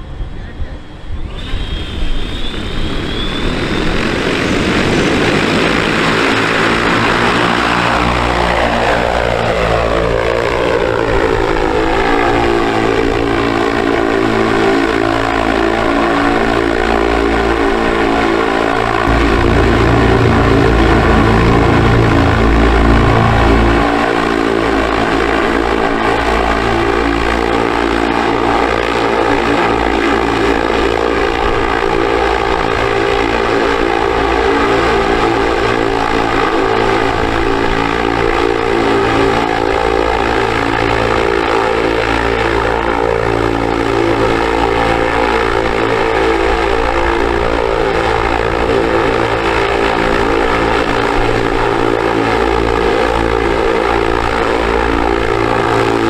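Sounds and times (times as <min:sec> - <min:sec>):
electric motor buzzing whine: 0:16.4 - 0:27.5.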